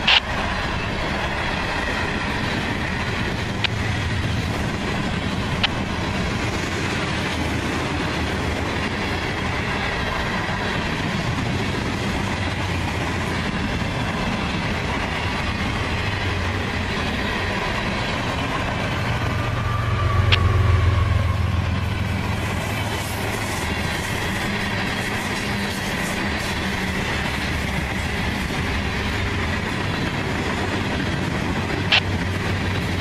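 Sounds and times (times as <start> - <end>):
diesel locomotive engine drone: 0.0 - 33.0
freight train wheels clattering: 21.5 - 33.0.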